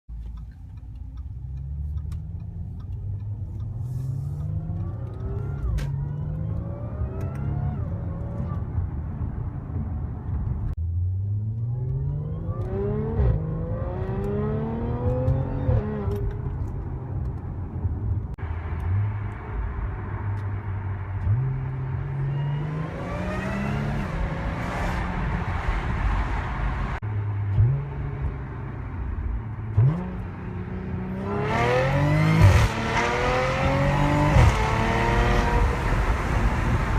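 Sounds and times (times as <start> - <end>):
car engine accelerating hard: 21.1 - 36.9.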